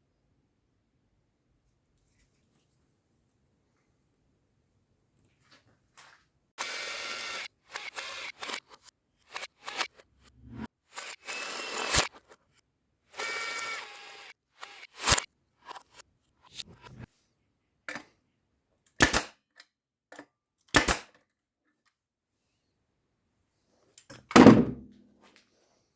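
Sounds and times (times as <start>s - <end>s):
nail gun shots: 19.0s - 19.4s, 20.7s - 21.1s.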